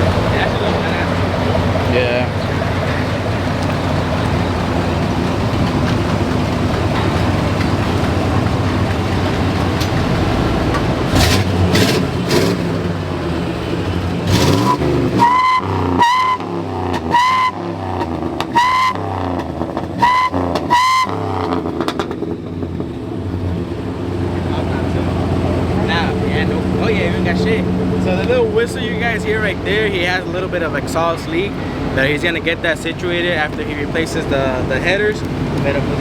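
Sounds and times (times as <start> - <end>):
engine rumble and throttle blips: 0.0 - 36.0
exhaust whistle: 13.7 - 19.4, 20.0 - 21.7.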